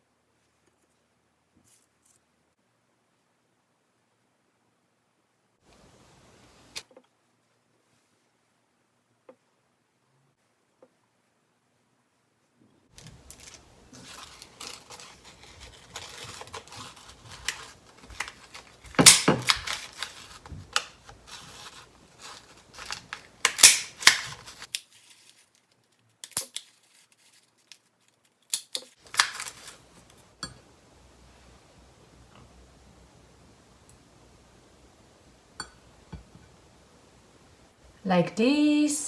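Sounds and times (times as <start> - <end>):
crinkling handling: 12.9 - 30.3.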